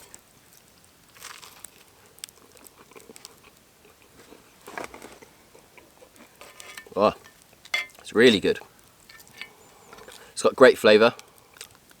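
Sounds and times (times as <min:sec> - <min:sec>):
person chewing: 0:02.4 - 0:04.4
spoon clicking and scraping pot: 0:07.7 - 0:08.0, 0:09.1 - 0:09.6.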